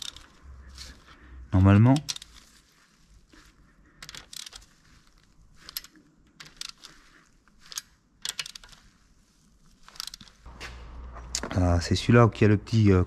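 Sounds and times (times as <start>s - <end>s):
metal parts and tools clinking: 0.0s - 2.5s, 4.0s - 9.0s, 9.6s - 10.5s.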